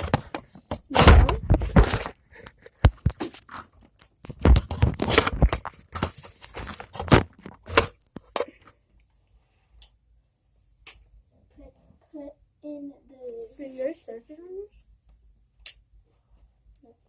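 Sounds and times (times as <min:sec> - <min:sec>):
crunchy rustles: 0:00.0 - 0:08.1
objects knocking and scraping: 0:00.0 - 0:08.8.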